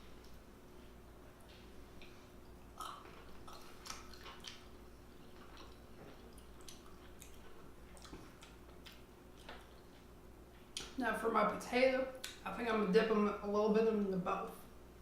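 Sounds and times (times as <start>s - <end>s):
faint steady hum: 0.0s - 15.0s
wet chewing and lip smacks: 1.5s - 11.0s.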